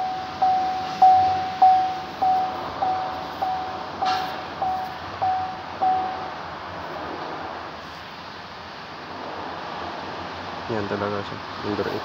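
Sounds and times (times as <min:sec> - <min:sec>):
electronic beeper beeping: 0:00.0 - 0:06.3
background hiss: 0:00.0 - 0:12.0.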